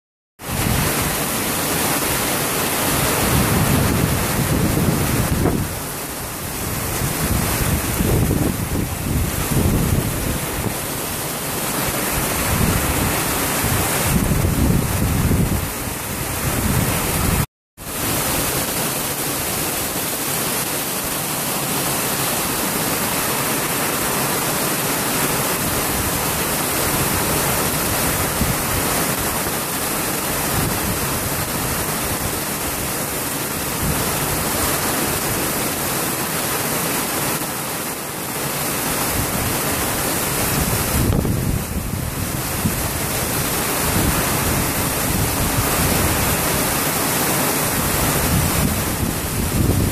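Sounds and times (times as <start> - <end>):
heavy rain pouring: 0.4 - 49.9.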